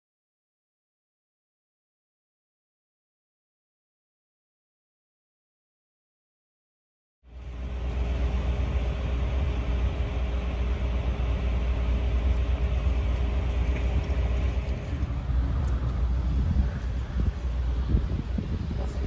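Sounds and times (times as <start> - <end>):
car engine and road noise: 7.3 - 19.0
faint hum: 7.3 - 19.0.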